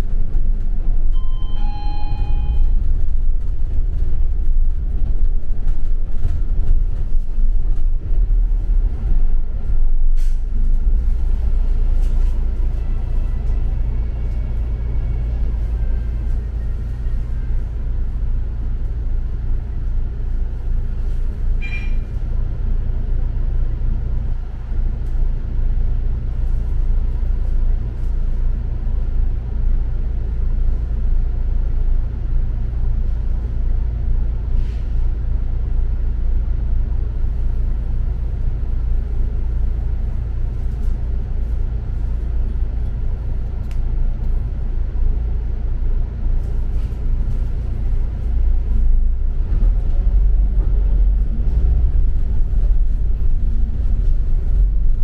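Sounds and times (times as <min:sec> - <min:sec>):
bus engine and road rumble: 0:00.0 - 0:55.0
short high beep: 0:01.2 - 0:02.7, 0:21.6 - 0:22.1.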